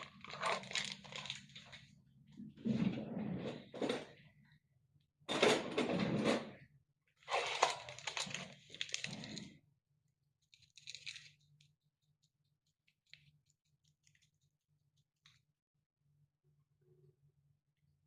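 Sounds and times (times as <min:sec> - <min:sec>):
rustling and handling noise: 0:00.0 - 0:01.9, 0:07.2 - 0:09.5, 0:10.4 - 0:11.7.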